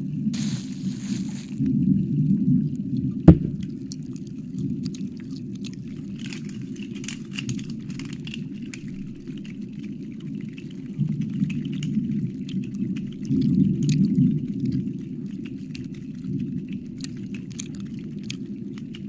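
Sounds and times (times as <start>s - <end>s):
sharp loud knock: 3.3s - 3.6s
wet mouth licking clicks: 17.0s - 18.4s.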